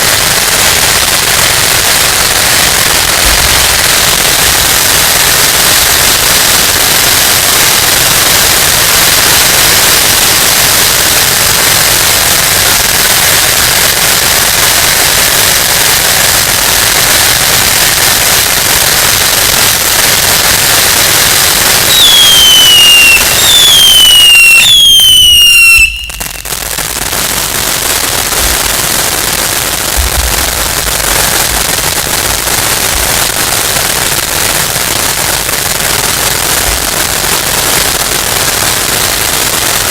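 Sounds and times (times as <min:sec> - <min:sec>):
falling firework whistles: 0:00.0 - 0:13.9, 0:14.5 - 0:34.4
fireworks crackling bangs: 0:00.0 - 0:39.9.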